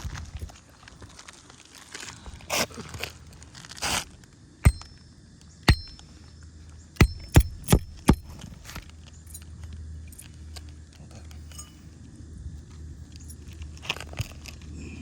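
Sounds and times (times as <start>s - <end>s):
hammer striking nails: 4.7s - 4.9s, 5.7s - 6.0s, 7.0s - 8.4s.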